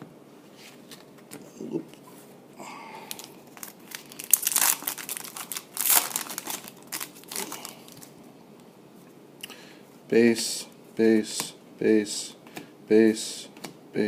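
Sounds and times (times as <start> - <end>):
foil wrappers crinkling: 3.1 - 8.2.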